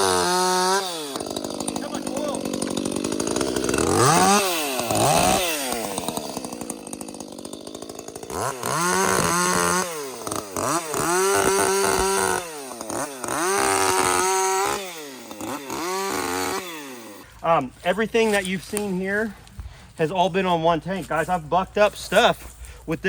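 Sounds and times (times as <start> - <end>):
chainsaw idling and revving: 0.0 - 22.6.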